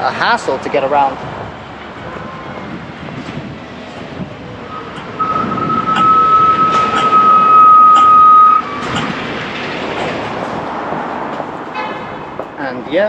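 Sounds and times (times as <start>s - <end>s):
wind noise: 0.0s - 12.5s
street noise: 0.0s - 13.0s
steady electronic tone: 4.6s - 8.8s.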